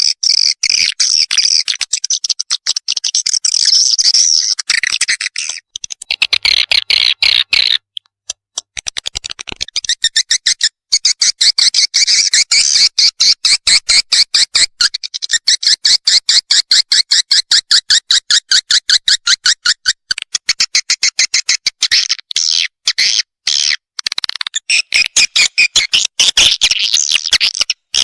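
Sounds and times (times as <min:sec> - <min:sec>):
buzzy bird chirrs: 0:00.2 - 0:08.0.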